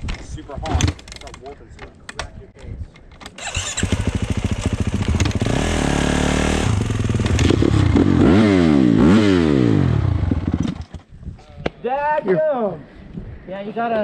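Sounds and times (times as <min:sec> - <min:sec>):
dirt bike engine revving: 0:03.4 - 0:10.8.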